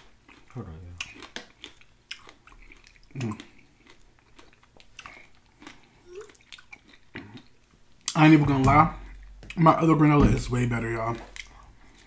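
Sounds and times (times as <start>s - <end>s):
chewing and crunching: 0.0s - 8.3s, 11.0s - 12.0s.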